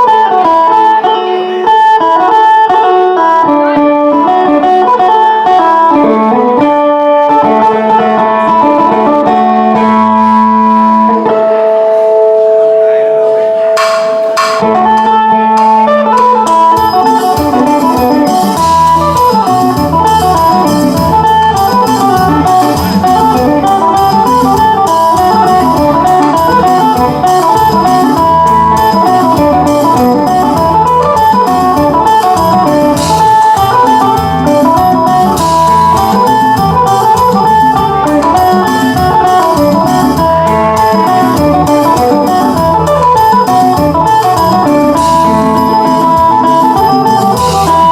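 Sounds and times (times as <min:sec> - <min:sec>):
plucked lute melody: 0:00.0 - 0:47.9
bass line: 0:12.9 - 0:47.9
steady beat: 0:12.9 - 0:47.9.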